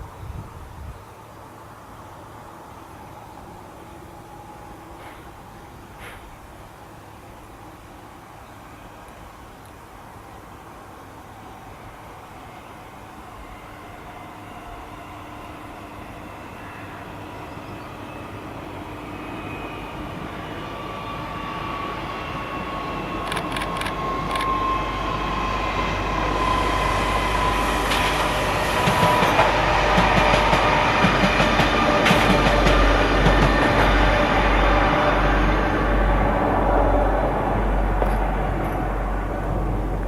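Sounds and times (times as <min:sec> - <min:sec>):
train passing: 0:00.0 - 0:40.0
train wheels clickety-clack: 0:05.0 - 0:05.3, 0:06.0 - 0:06.3, 0:27.4 - 0:35.1, 0:37.9 - 0:39.0.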